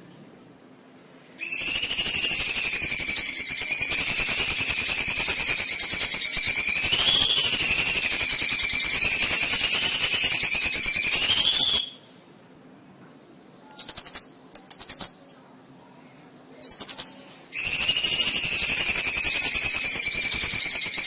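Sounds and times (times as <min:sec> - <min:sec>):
short high bird calls: 0:01.4 - 0:12.1, 0:16.6 - 0:21.0
bird rapid jingling chatter: 0:16.6 - 0:21.0.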